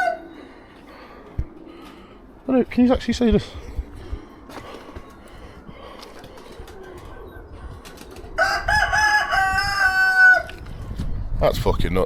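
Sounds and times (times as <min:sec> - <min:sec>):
rooster crowing: 0:00.0 - 0:00.6, 0:08.4 - 0:10.6.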